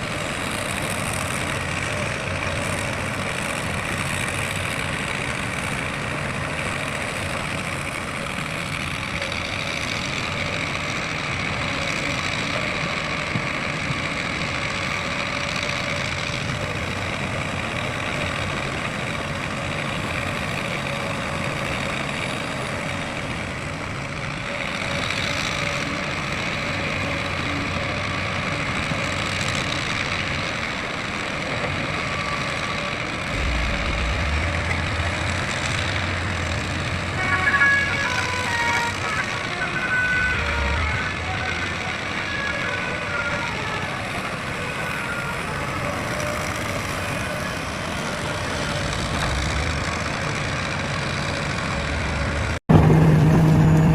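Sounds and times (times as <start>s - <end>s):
heavy diesel engine running: 0.0s - 53.9s
deep low rumble: 33.3s - 37.2s.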